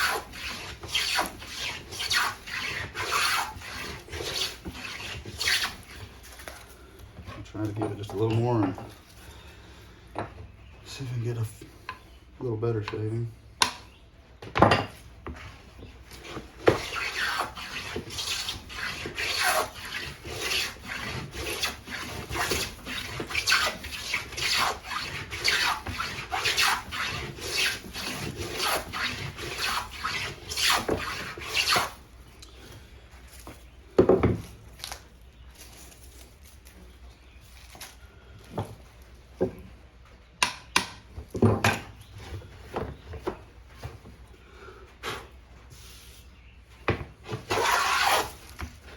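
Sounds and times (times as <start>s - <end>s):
plane shaving wood: 0.0s - 8.9s, 15.4s - 32.0s, 47.2s - 48.9s.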